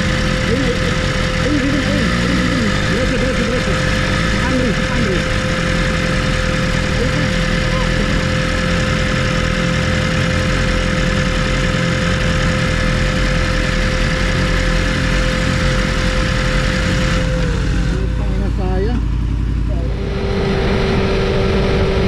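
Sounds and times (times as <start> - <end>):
motorcycle engine idling: 0.0 - 21.7
steady whine: 0.0 - 22.0.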